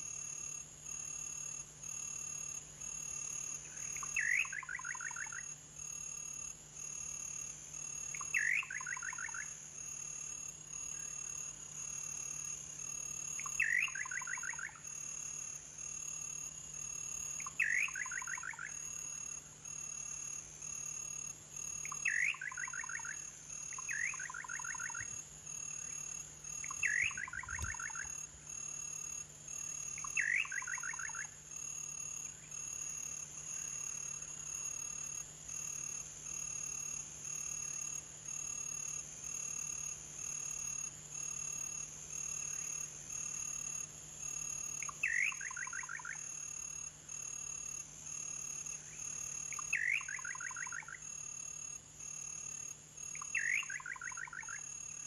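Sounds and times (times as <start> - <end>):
bird calling: 26.7 - 28.2.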